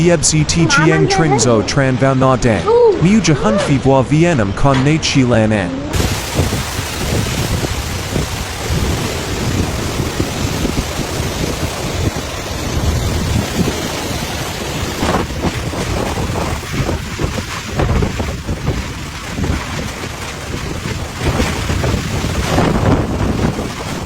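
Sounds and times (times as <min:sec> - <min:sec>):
heavy wind-driven rain: 0:05.9 - 0:24.0
wind buffeting microphone: 0:05.9 - 0:24.0.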